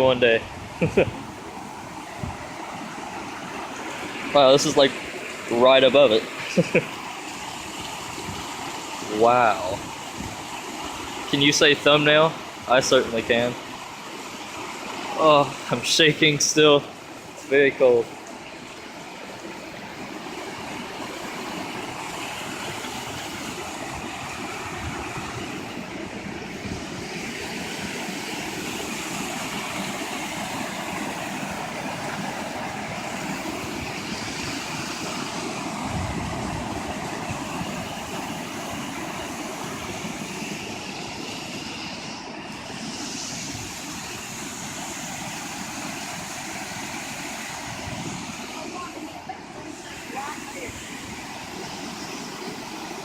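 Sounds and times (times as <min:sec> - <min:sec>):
wind rumbling on microphone: 0:00.0 - 0:04.8, 0:07.4 - 0:11.4, 0:19.4 - 0:53.0
waterfall rushing: 0:00.0 - 0:53.0.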